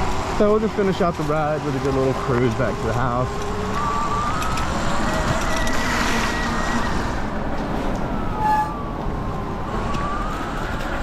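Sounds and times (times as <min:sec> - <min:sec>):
wind and tyre noise: 0:00.0 - 0:11.0
electric motor whining: 0:02.2 - 0:07.4.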